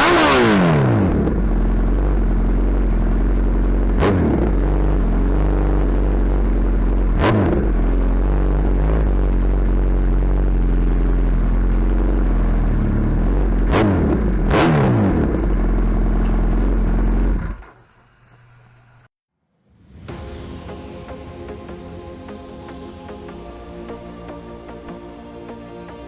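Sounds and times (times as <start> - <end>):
motorcycle engine idling and revving: 0.0 - 17.8.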